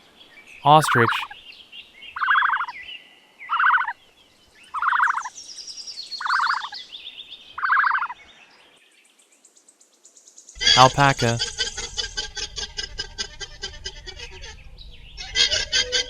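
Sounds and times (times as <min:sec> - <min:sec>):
bird pulsed call: 0:06.2 - 0:06.7.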